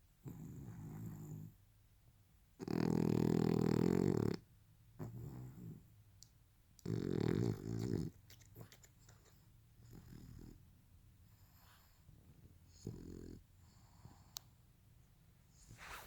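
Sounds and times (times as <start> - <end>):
dog snoring: 0.2 - 1.6, 2.6 - 5.9, 6.8 - 8.1, 9.8 - 10.6, 12.6 - 14.4.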